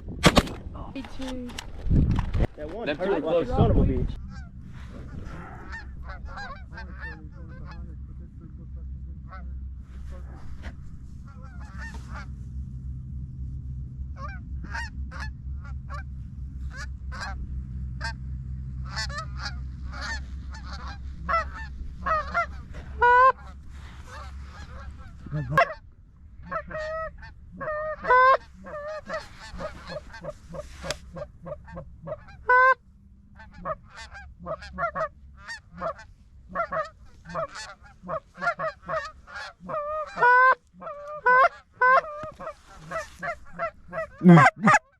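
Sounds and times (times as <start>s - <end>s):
low steady rumble: 0.0s - 44.9s
geese honking and clucking: 4.2s - 12.8s, 14.0s - 44.9s.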